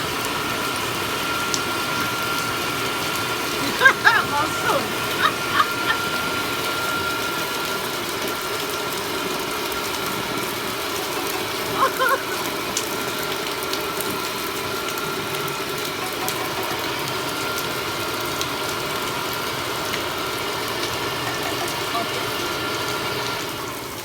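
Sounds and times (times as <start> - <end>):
heavy rain: 0.0 - 24.0.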